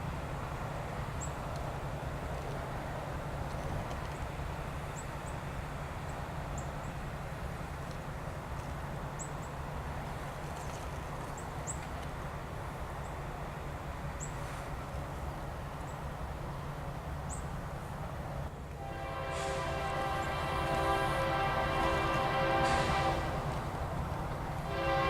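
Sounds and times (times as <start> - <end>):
diesel locomotive engine drone: 0.0 - 25.0
locomotive air horn chord: 18.8 - 23.9, 24.5 - 25.0.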